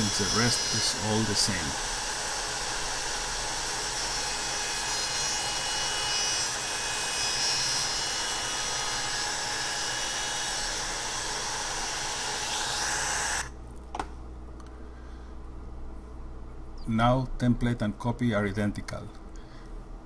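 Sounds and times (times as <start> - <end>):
router whining while cutting wood: 0.0 - 13.5.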